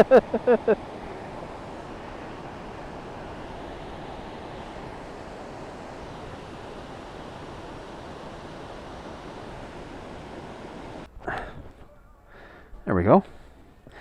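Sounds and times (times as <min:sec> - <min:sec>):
fast-flowing river water: 0:00.0 - 0:11.1.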